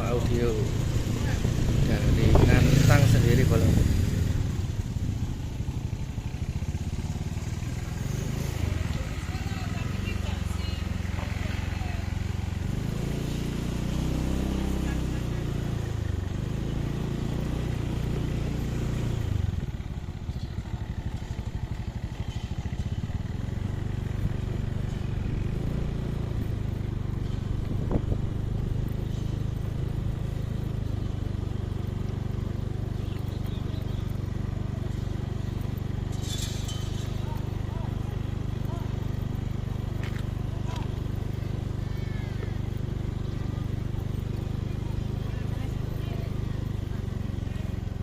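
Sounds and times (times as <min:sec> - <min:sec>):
vehicle engine running: 0:00.0 - 0:48.0.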